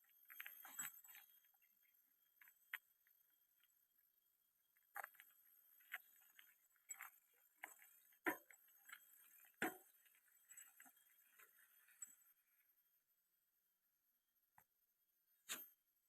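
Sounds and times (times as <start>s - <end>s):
faint irregular clicks and taps: 4.7s - 12.4s.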